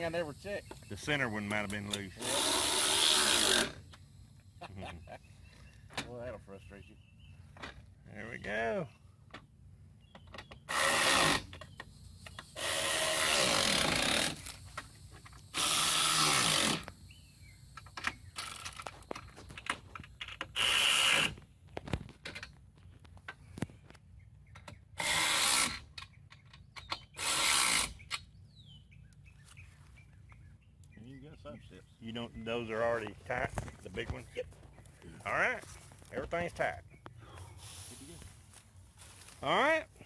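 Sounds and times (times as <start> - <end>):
power drill driving screws: 0.0 - 4.0, 10.7 - 17.0, 20.2 - 21.4, 25.0 - 25.9, 27.0 - 28.2.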